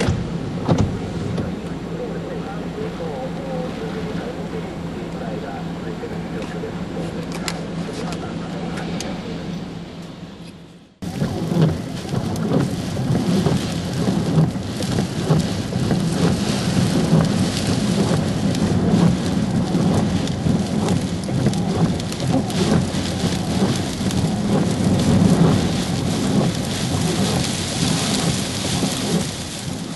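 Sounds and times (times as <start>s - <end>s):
heavy rain: 0.0s - 9.5s, 11.0s - 29.9s
strong wind gusting: 7.6s - 29.9s
wind buffeting microphone: 11.0s - 29.9s.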